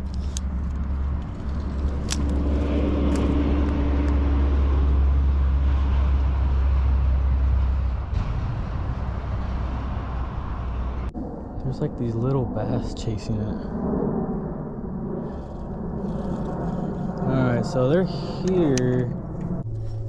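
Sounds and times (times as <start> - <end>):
passing vehicle engine rumble: 0.0 - 13.7
faint hum: 0.0 - 20.0.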